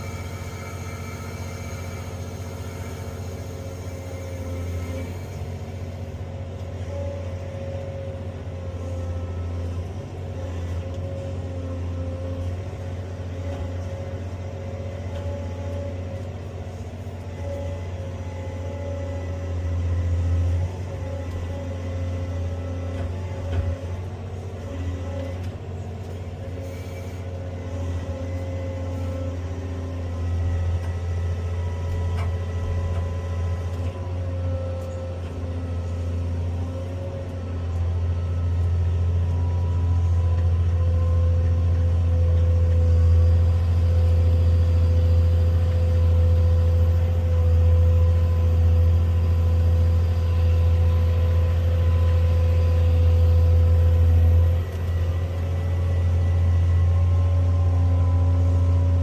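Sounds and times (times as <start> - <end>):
excavator engine drone: 0.0 - 59.0
hydraulic whine: 0.0 - 59.0.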